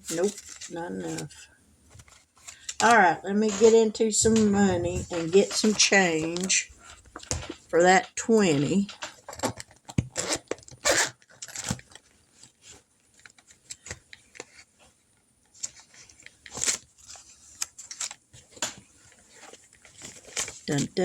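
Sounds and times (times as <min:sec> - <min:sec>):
paper cash rustling: 0:00.0 - 0:09.6.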